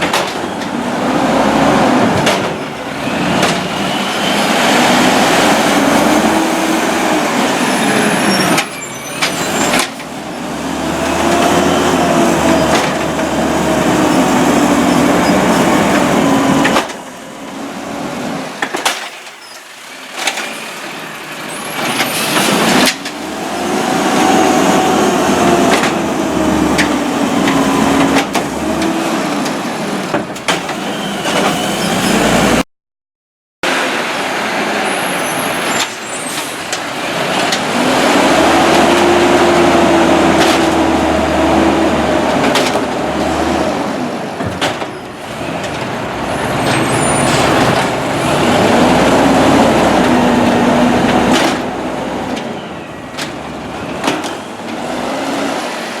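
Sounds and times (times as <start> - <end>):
knocks from hydraulic arm and carts: 0.0 - 0.8, 2.0 - 6.4, 11.0 - 19.4, 23.9 - 31.8, 35.8 - 52.5, 53.1 - 55.6
garbage truck engine revving: 0.0 - 18.6, 20.2 - 32.6, 35.4 - 56.0.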